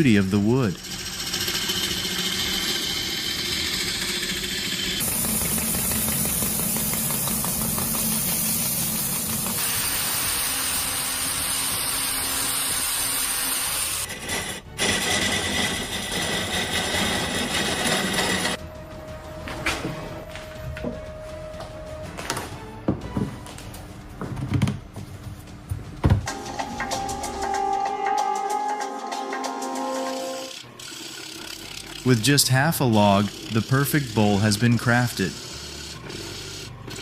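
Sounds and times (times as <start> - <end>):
wood lathe cutting wood: 0.0 - 18.6, 29.2 - 37.0.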